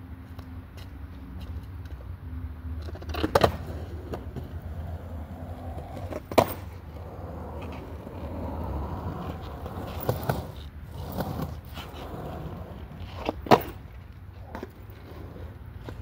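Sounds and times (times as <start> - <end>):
skateboard wheels rolling: 0.2 - 16.0
skateboard wooden clacks: 2.8 - 4.6, 5.7 - 6.8, 9.2 - 16.0.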